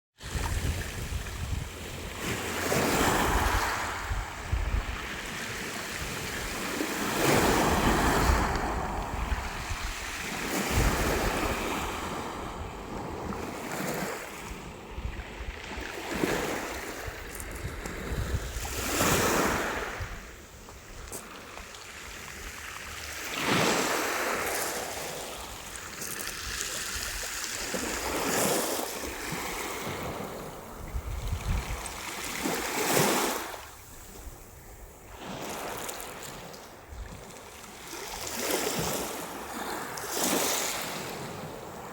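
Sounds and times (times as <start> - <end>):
wind rumble on microphone: 0.2 - 21.0, 29.3 - 32.6
waves breaking on shore: 0.2 - 41.9.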